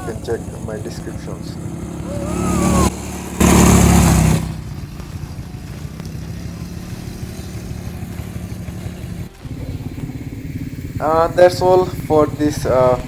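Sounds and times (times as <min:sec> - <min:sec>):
atv engine running: 0:00.0 - 0:13.0
loud rush of noise: 0:01.8 - 0:04.5.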